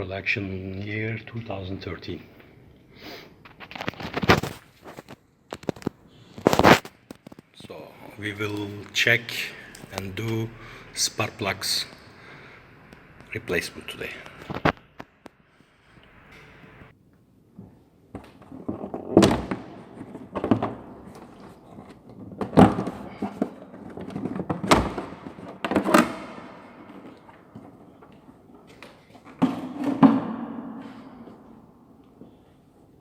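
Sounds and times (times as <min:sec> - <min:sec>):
handling noise: 0:03.5 - 0:10.8, 0:17.6 - 0:32.8.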